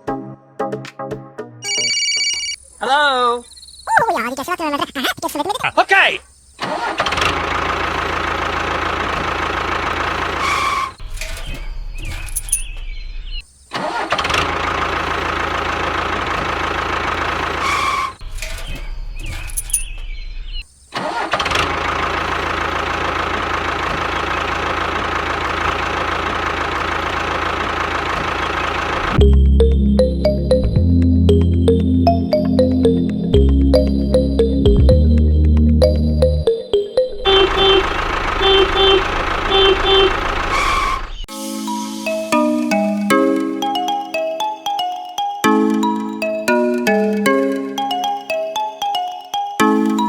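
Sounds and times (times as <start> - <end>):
tractor diesel engine running: 6.6 - 36.5, 37.2 - 41.3.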